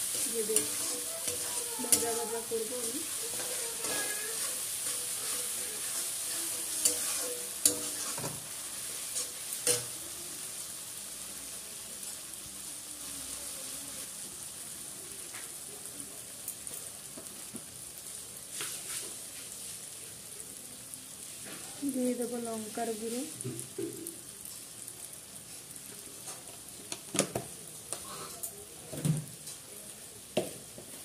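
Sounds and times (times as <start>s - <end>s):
metal spatula scraping pan: 0.0s - 10.0s
food sizzling in oil: 0.0s - 31.0s.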